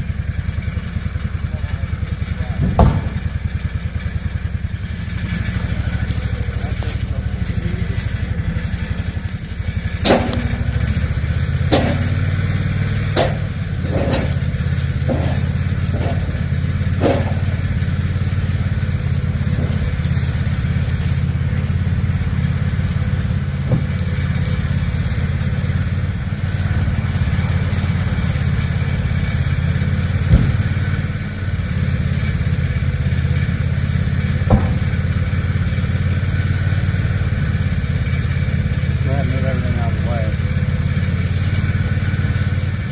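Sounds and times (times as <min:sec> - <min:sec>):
engine running: 0:00.0 - 0:42.9
sharp knocks and clunks: 0:02.6 - 0:03.4, 0:09.9 - 0:21.4, 0:30.1 - 0:31.0, 0:34.4 - 0:35.3.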